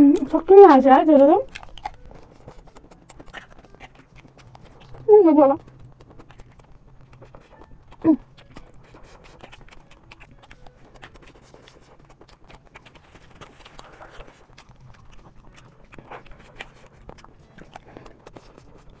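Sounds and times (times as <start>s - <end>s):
chewing crunchy food: 0.0s - 19.0s
person humming: 8.0s - 8.4s.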